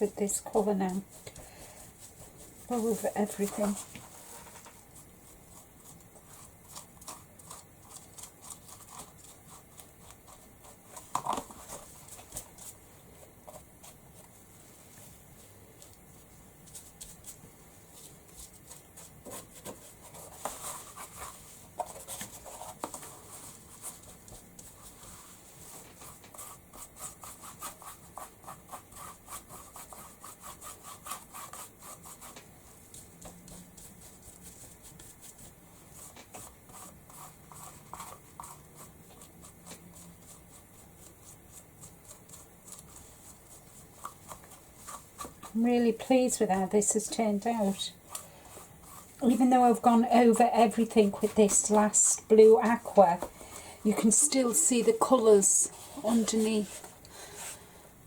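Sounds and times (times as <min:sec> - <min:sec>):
paint rubbed on wooden board: 0:18.3 - 0:56.9.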